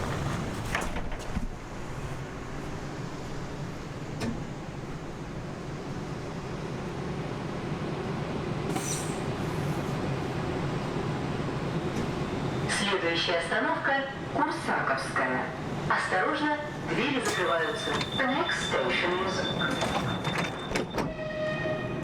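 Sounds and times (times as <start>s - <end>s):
electric train rumble: 0.0s - 22.0s.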